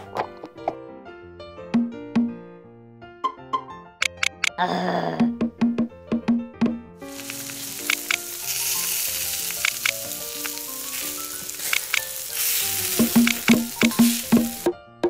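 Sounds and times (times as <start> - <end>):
light background music: 0.0 - 15.0
food sizzling in a pan: 7.0 - 14.7.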